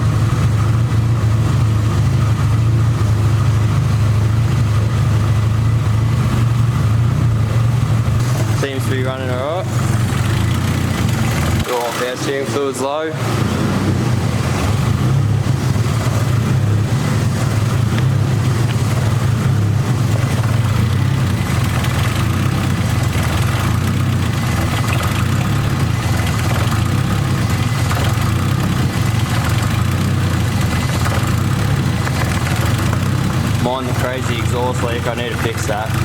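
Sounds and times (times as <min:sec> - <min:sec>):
car engine idling: 0:00.0 - 0:36.0
exhaust leak puffing: 0:00.0 - 0:36.0.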